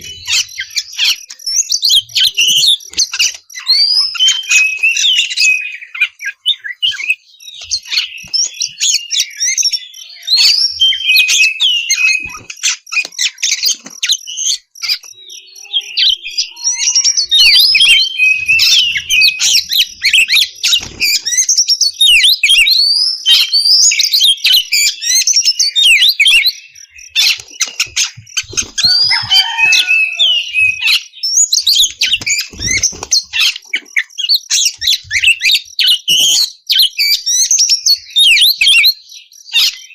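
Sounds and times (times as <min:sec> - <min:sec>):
magpie-robin singing: 0:00.0 - 0:39.9.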